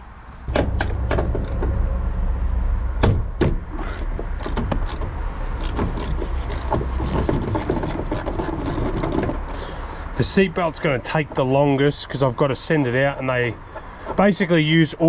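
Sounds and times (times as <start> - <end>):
clicks and knocks: 0.3 - 2.2.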